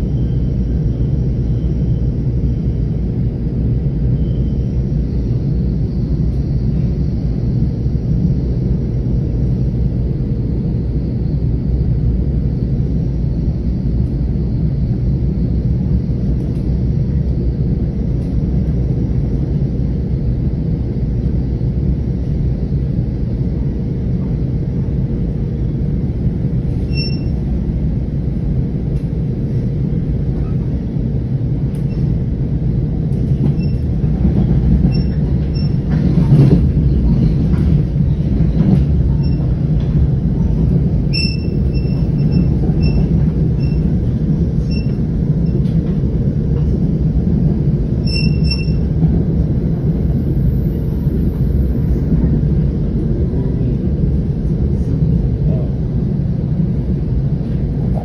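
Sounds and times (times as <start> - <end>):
train wheels rumbling on track: 0.0 - 58.0
short high squeaks: 26.9 - 27.4, 41.1 - 43.8, 48.1 - 48.8.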